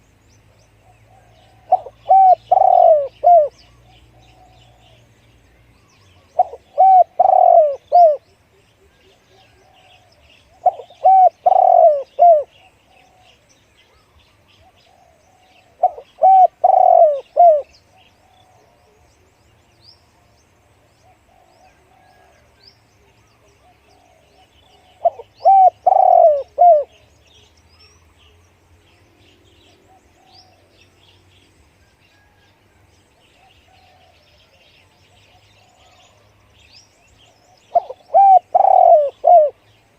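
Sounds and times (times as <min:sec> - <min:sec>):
small birds chirping: 0:00.0 - 0:32.4, 0:33.0 - 0:39.9
dove cooing: 0:00.9 - 0:05.0, 0:06.1 - 0:08.2, 0:08.8 - 0:13.4, 0:14.6 - 0:19.0, 0:21.0 - 0:22.5, 0:23.4 - 0:27.1, 0:33.4 - 0:34.6, 0:35.2 - 0:36.4, 0:37.3 - 0:39.7.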